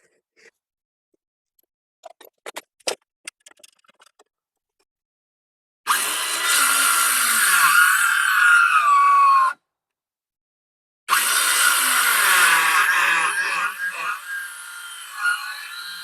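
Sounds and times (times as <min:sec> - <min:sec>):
circular saw cutting wood: 0:05.9 - 0:09.0, 0:11.1 - 0:16.0.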